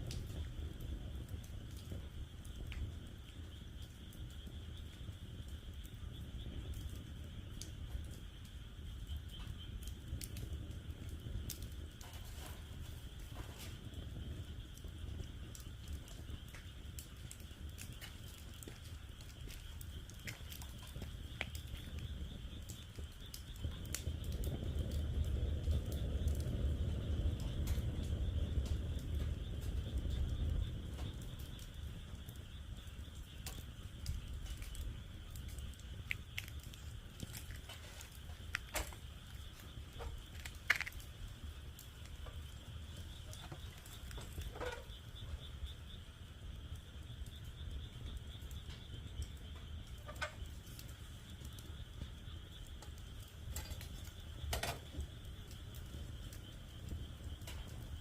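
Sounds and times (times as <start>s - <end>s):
wood fire crackling and popping: 0.0s - 58.0s
frogs calling: 28.9s - 58.0s.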